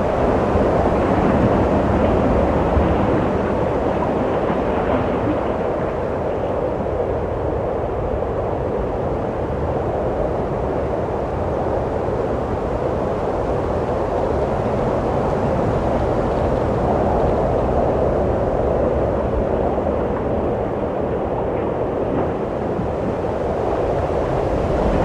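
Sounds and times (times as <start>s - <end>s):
wind blowing: 15.1s - 25.0s.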